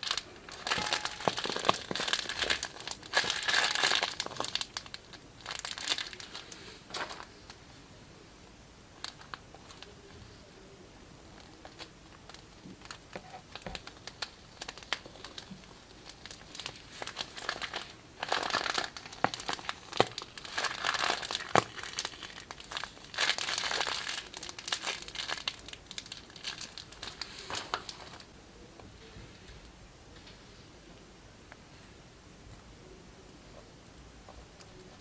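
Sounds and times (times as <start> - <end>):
plastic bags crinkling: 0.0 - 7.5, 9.0 - 9.9, 11.4 - 28.3.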